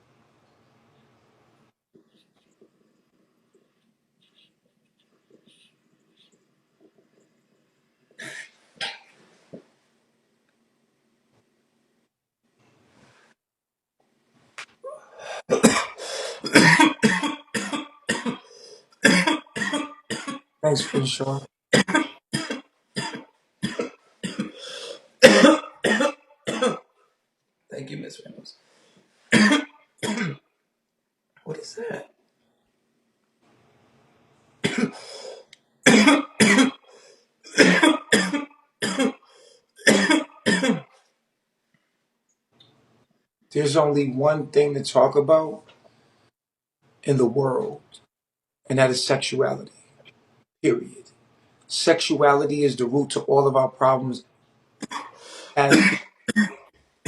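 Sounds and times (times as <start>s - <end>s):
person coughing: 14.9s - 21.1s, 21.8s - 26.9s, 29.3s - 30.4s, 34.6s - 35.1s, 35.8s - 36.8s, 37.5s - 39.2s, 39.8s - 40.9s, 54.8s - 56.7s.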